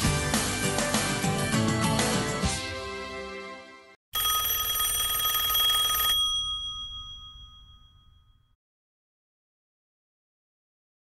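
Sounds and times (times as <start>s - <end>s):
background music: 0.0s - 3.9s.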